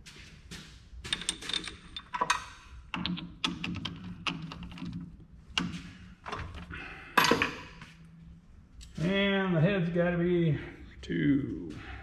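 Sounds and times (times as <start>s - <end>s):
steady low hum: 0.0s - 12.0s
metal tools clicking and rattling: 1.0s - 6.6s.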